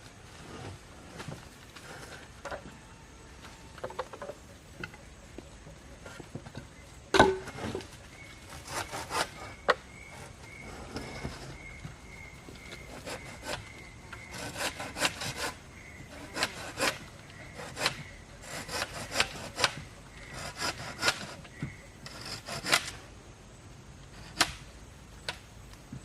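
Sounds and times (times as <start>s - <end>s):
hand saw cutting wood: 8.5s - 11.6s, 12.8s - 23.0s.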